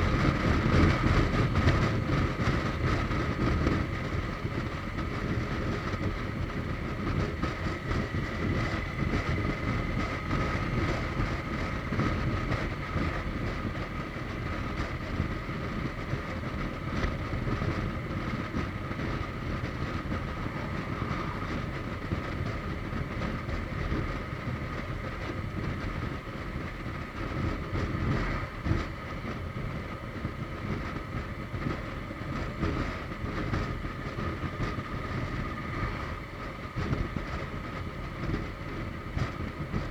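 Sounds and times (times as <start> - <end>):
faint steady whine: 0.0 - 39.9
wind rushing over microphone: 0.0 - 39.9.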